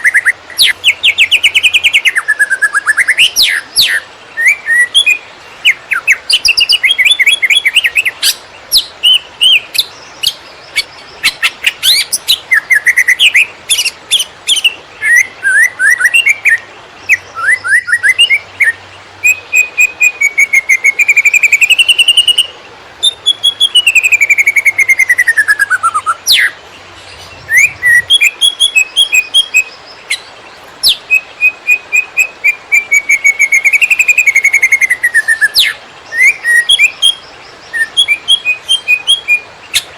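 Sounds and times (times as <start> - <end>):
bird singing fast chirps and trills: 0.0 - 39.9
long falling bird whistle: 14.5 - 26.6, 30.8 - 39.4.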